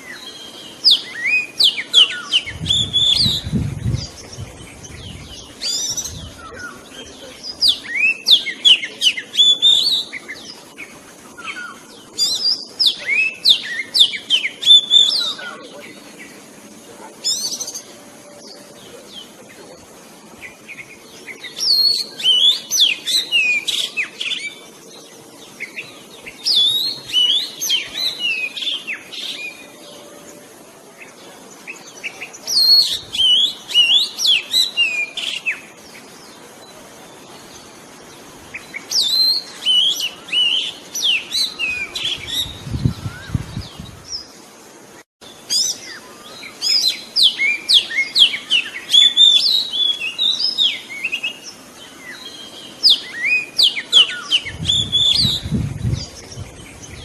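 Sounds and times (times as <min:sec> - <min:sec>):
bird whistled song: 0:00.0 - 0:06.8, 0:07.5 - 0:10.6, 0:11.4 - 0:15.4, 0:20.7 - 0:24.6, 0:25.6 - 0:30.1, 0:31.7 - 0:35.7, 0:38.5 - 0:44.3, 0:45.5 - 0:57.0.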